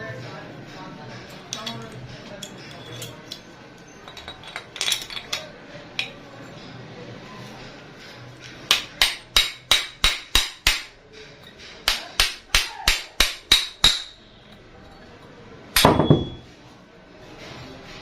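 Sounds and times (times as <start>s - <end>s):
hammer tapping on metal: 8.7s - 14.2s, 15.8s - 16.4s.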